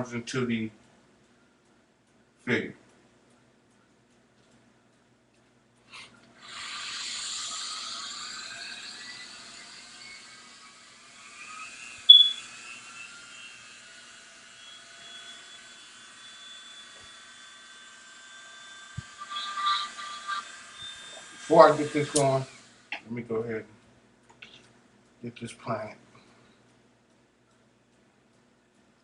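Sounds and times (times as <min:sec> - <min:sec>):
rotary tool whirring: 0:06.4 - 0:22.9.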